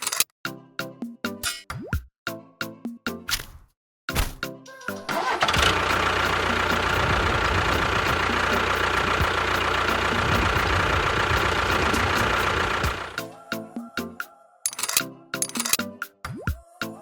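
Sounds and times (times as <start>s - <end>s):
engine low rumble: 5.0s - 13.2s.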